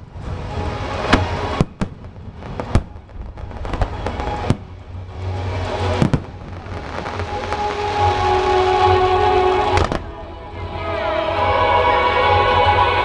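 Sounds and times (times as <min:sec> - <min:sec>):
fireworks bangs: 0:00.0 - 0:08.6, 0:09.7 - 0:10.2
fireworks crackle: 0:00.0 - 0:08.7, 0:09.7 - 0:10.1.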